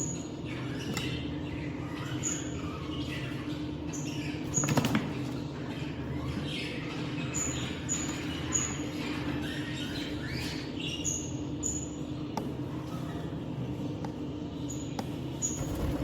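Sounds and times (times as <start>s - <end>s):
steady low hum: 15.5s - 16.0s.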